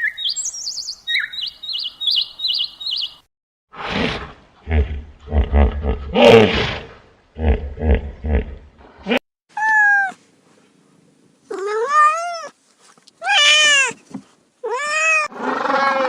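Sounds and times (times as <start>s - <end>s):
cat meowing: 11.5s - 12.5s, 13.2s - 14.0s, 14.6s - 15.3s.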